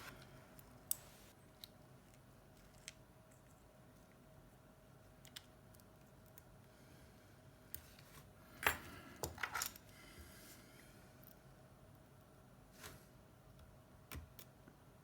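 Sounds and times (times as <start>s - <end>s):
metal tools clattering on work surface: 8.6s - 9.8s.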